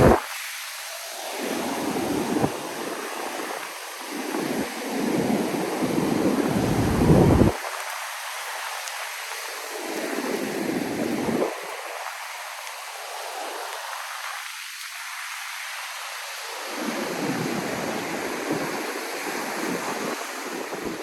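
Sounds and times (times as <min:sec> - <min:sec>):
wind rumbling on microphone: 0:00.0 - 0:00.4, 0:01.3 - 0:07.9, 0:09.7 - 0:12.2, 0:16.6 - 0:21.0
surf washing on beach: 0:00.0 - 0:21.0.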